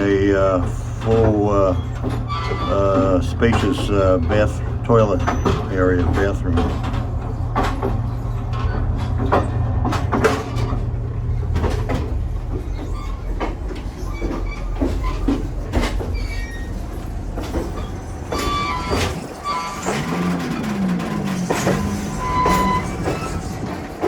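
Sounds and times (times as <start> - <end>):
train rumbling over track: 0.0 - 24.0
thin high squeals: 17.8 - 20.0, 21.4 - 23.7.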